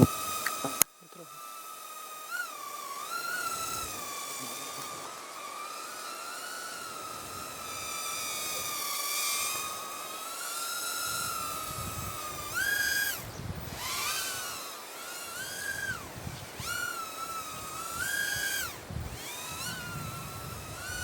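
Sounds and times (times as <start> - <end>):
quadcopter motors whining: 0.0 - 21.0
wind rumble on microphone: 11.2 - 14.0, 15.8 - 16.8, 17.5 - 21.0.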